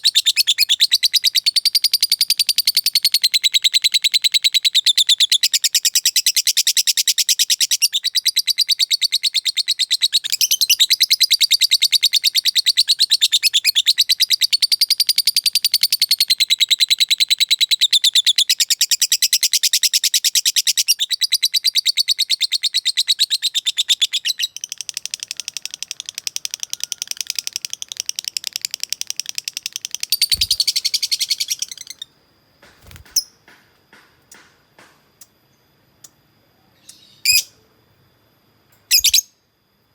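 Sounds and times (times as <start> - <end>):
bird chattering trill: 23.6 - 32.0, 38.9 - 39.3.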